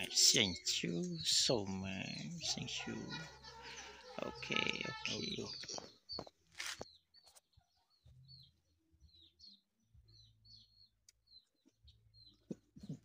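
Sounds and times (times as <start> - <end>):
small bird chirps: 0.0 - 13.0
rustling noise: 6.4 - 7.4.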